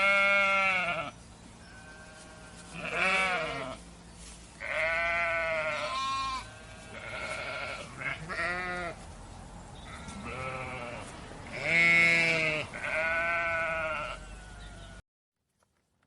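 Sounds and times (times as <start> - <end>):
sheep or goat bleating: 0.0 - 1.1, 1.7 - 3.8, 4.6 - 9.0, 9.9 - 15.0.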